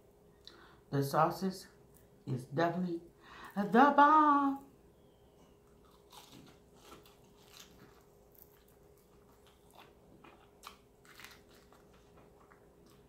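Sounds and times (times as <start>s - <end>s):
faint steady hum: 0.0s - 13.0s
chewing crispy food: 5.5s - 13.0s.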